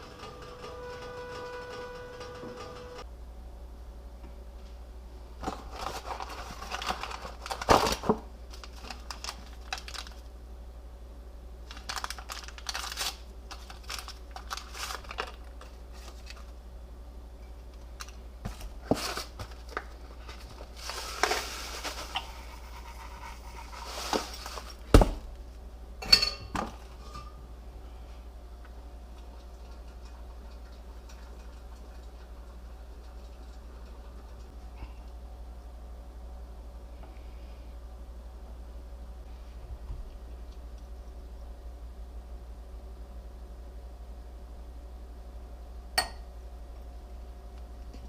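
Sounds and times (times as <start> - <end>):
steady low hum: 0.0 - 48.0
paper or plastic crinkling: 5.4 - 10.3, 11.6 - 16.6, 18.0 - 25.0.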